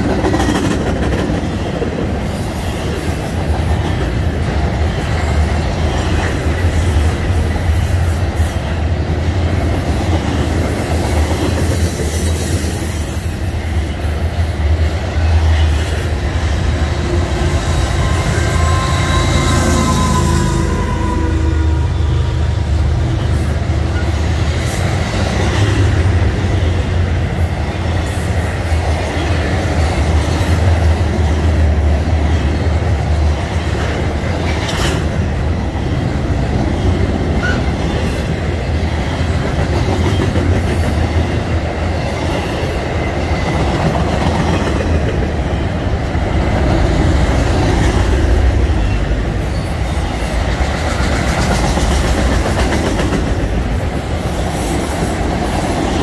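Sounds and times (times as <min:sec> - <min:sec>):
freight train wheels clickety-clack: 0:00.0 - 0:56.0
high wheel squeal: 0:17.0 - 0:22.5.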